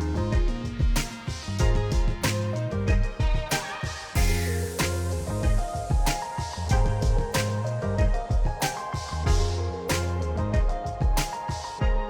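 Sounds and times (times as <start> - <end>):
drum hits: 0.0 - 12.0.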